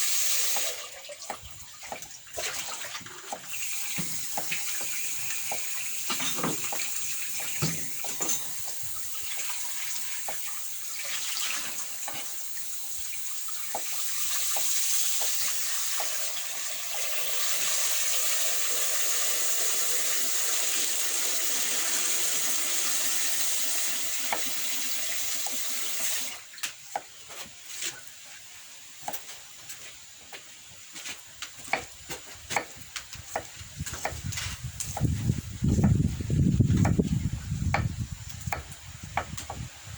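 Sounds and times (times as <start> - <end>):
water running in a stream: 0.0 - 39.9
light knocks and clatter: 3.3 - 8.6.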